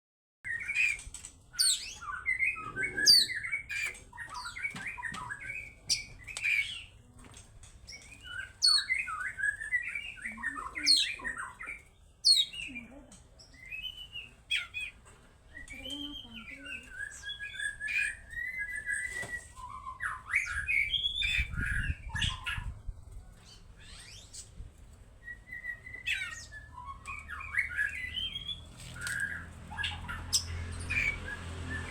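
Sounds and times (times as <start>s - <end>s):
songbird singing: 0.5s - 7.1s, 7.8s - 31.9s.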